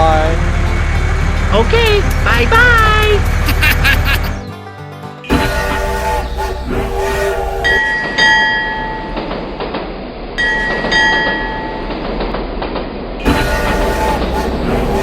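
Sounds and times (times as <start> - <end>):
steady rumble: 0.0 - 4.1, 5.3 - 8.3, 12.2 - 15.0
horn blasts: 5.2 - 8.3, 13.2 - 15.0.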